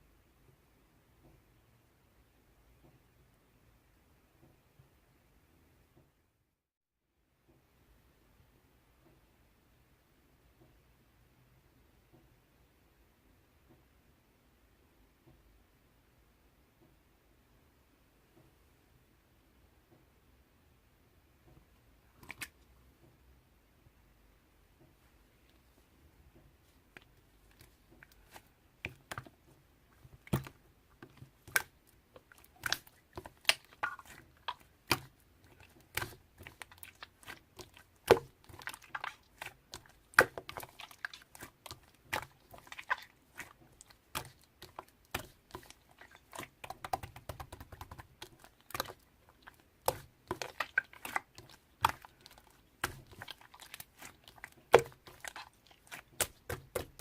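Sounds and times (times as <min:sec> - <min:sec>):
slime squished by hand: 0:26.9 - 0:57.0.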